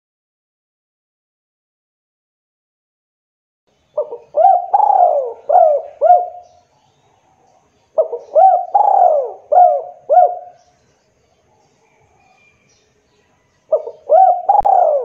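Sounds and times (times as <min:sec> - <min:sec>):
dove cooing: 0:04.0 - 0:06.6, 0:07.3 - 0:10.7, 0:13.7 - 0:15.0.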